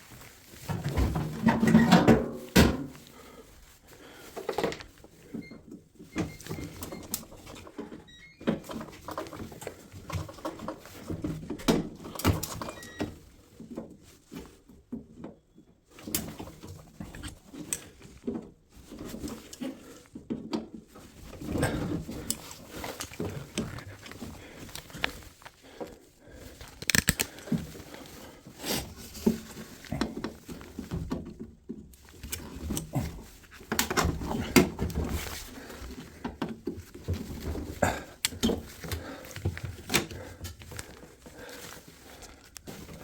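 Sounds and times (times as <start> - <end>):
tools knocking and clattering: 0.6 - 3.0.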